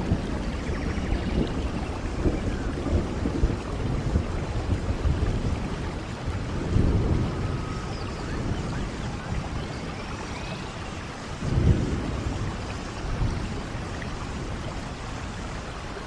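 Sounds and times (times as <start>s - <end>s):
heavy rain on foliage: 0.0s - 16.0s
faint bird or insect calls: 0.2s - 2.9s, 7.2s - 11.7s.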